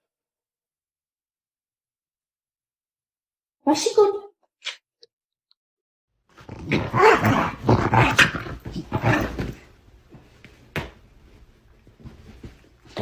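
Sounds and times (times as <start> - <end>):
dog growling: 6.3 - 9.6.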